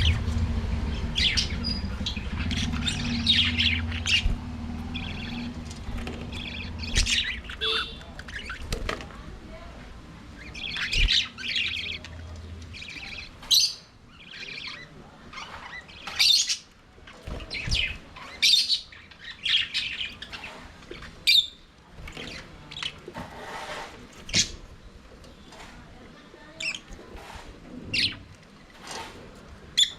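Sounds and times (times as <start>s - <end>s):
budgerigars chirping and warbling: 0.0s - 8.9s, 10.4s - 21.6s, 27.8s - 28.3s
sharp high bird calls: 6.3s - 8.5s.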